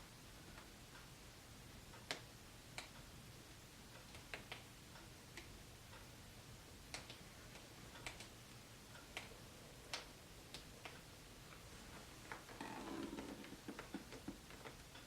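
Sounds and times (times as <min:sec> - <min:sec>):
low room hum: 0:00.0 - 0:15.0
faint sharp clicks: 0:06.9 - 0:09.3, 0:09.9 - 0:11.6.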